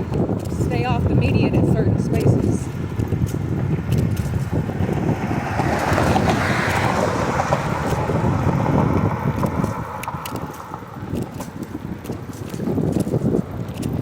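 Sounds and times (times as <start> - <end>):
road and wind rumble: 0.0 - 14.0
vehicle passing: 1.9 - 12.8.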